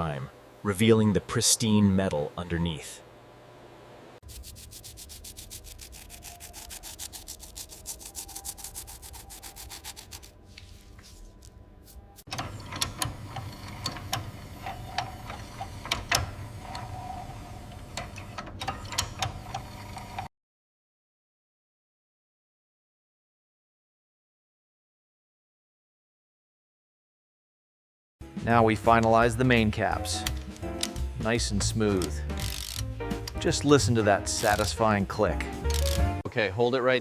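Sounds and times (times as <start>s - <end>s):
heavy rubbing: 4.2s - 12.3s
hand scrubbing metal: 4.2s - 12.4s, 28.8s - 36.0s
sharp clicks and knocks: 30.0s - 33.5s.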